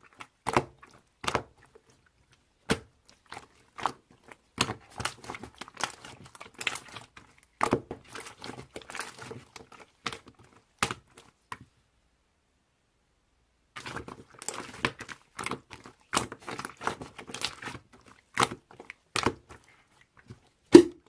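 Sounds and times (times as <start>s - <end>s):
crinkling and crunching: 13.8s - 21.0s.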